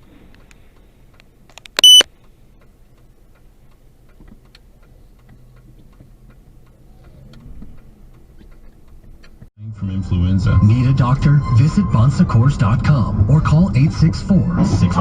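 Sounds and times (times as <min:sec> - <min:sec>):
light scattered ticking: 0:00.3 - 0:09.5
high-pitched electronic beep: 0:01.8 - 0:02.0.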